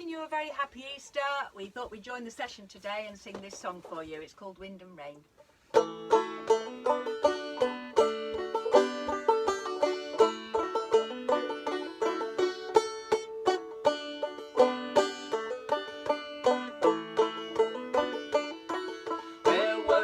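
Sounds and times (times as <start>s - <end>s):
plucked acoustic strings folk tune: 5.5s - 20.0s.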